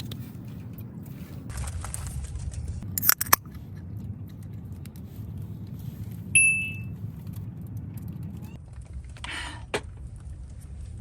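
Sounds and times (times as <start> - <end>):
steady low hum: 0.0 - 11.0
high ringing ping: 6.4 - 6.9.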